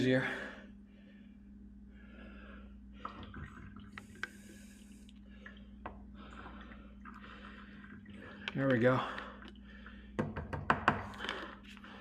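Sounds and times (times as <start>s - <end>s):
liquid trickling: 3.1s - 10.1s.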